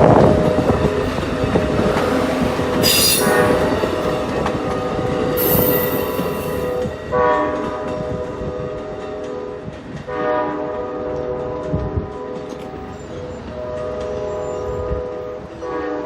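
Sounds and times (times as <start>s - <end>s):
train passing: 0.0s - 16.0s
high-pitched wheel squeal: 2.8s - 3.7s, 5.4s - 6.8s
train horn blasts: 2.8s - 3.9s, 5.4s - 16.0s.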